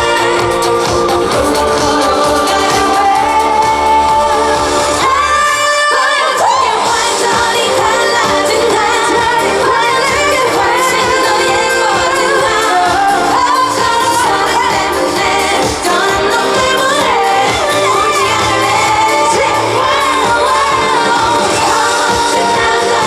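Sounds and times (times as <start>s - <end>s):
loud pop accompaniment: 0.0s - 5.6s, 6.8s - 23.0s
woman singing: 0.0s - 23.0s.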